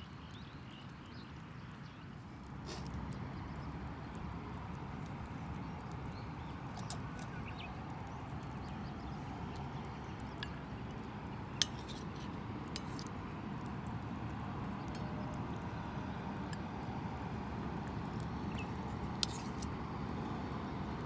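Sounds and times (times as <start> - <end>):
sharp clicks and clinks: 11.6 - 13.1.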